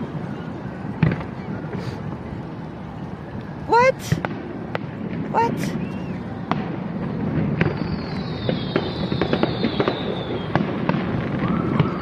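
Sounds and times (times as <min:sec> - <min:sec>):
fireworks crackling bangs: 0:00.0 - 0:12.0
firework whistle gliding down: 0:05.5 - 0:06.6, 0:07.5 - 0:12.0.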